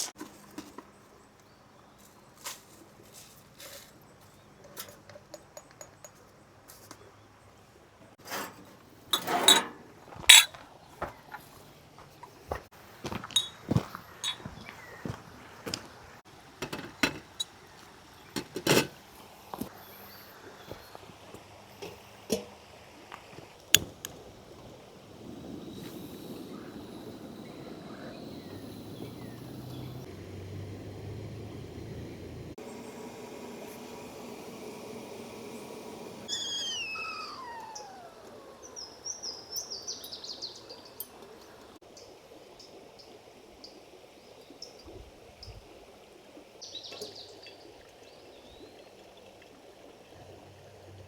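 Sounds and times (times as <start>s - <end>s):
faint steady hiss: 6.1s - 51.0s
creek water rushing: 18.9s - 39.5s
bird whistling and chirping: 36.3s - 40.6s.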